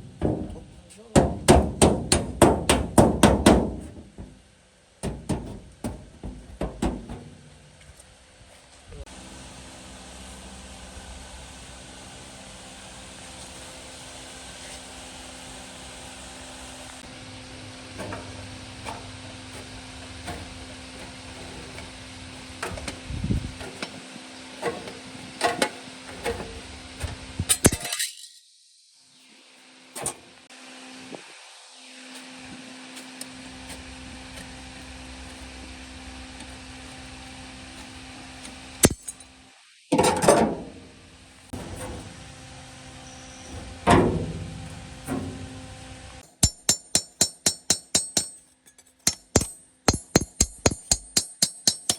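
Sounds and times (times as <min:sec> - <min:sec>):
metal tools clinking and knocking: 0:27.5 - 0:28.4, 0:38.8 - 0:39.3, 0:46.2 - 0:51.9
steady hum: 0:40.5 - 0:48.4.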